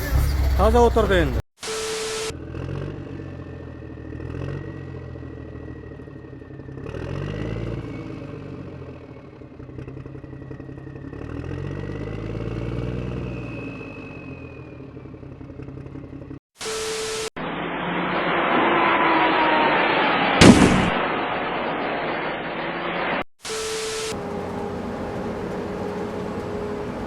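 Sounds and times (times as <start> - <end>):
engine revving: 0.0 - 27.0
thin high whine: 1.6 - 2.3, 16.6 - 24.2.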